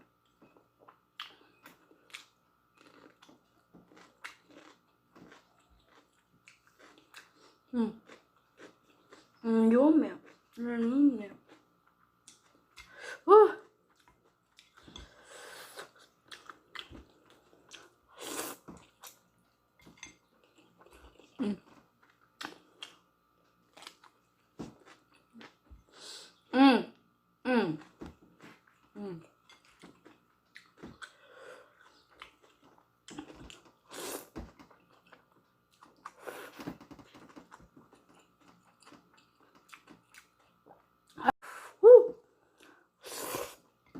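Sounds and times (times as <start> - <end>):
person chewing noodles: 0.2 - 9.4, 13.8 - 23.1, 23.7 - 26.0, 27.8 - 41.2
chewing noodles: 1.2 - 9.4.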